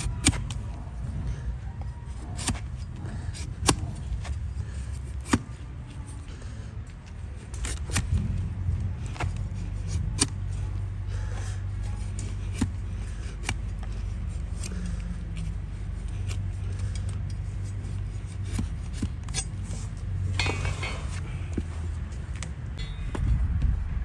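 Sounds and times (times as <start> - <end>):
trimming blade clicking on hoof: 0.0 - 0.7, 2.1 - 4.0, 4.9 - 5.6, 7.4 - 8.3, 9.1 - 10.6, 11.3 - 20.7
blade scraping hoof: 0.0 - 21.9
steady low hum: 0.0 - 24.0.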